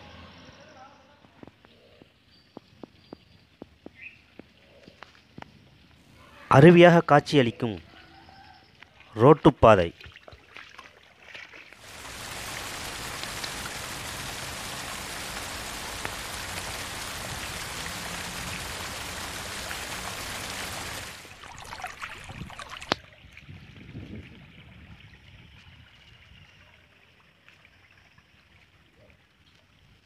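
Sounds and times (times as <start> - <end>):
rushing water: 8.9 - 26.3
heavy rain hissing: 11.8 - 23.0.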